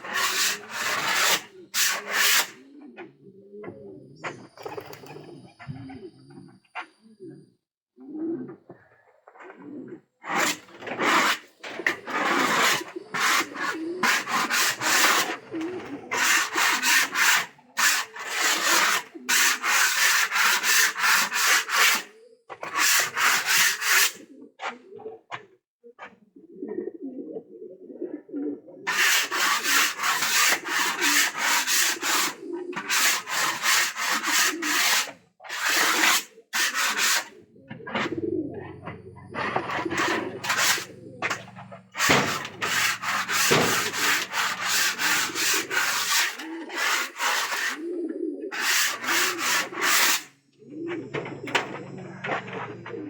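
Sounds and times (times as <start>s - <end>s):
rough scraping strokes: 0.0s - 2.6s, 10.3s - 24.2s, 28.9s - 53.0s
pigeons cooing: 0.0s - 53.0s.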